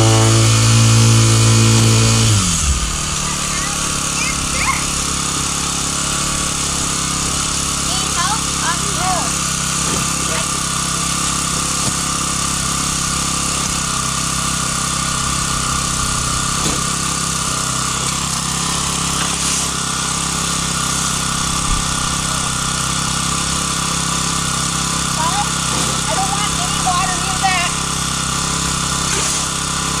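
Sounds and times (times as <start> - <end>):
high whine: 0.0 - 6.9
engine running steadily: 0.0 - 30.0.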